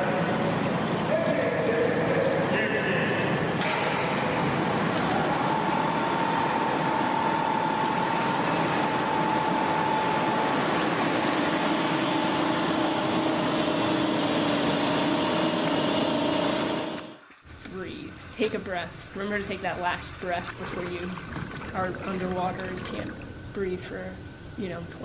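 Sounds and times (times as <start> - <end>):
faint steady hums: 0.0 - 15.6, 17.5 - 25.0
motor running evenly: 4.3 - 17.2.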